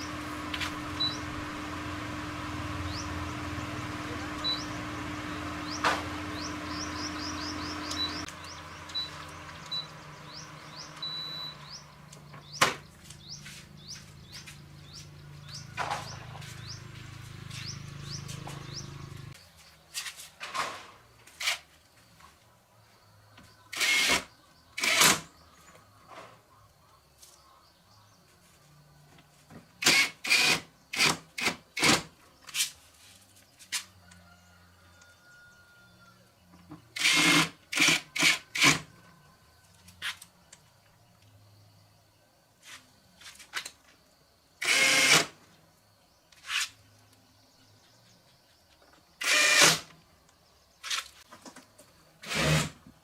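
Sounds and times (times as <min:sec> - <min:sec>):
low machine hum: 0:00.0 - 0:19.4
birds chirping: 0:00.0 - 0:20.2.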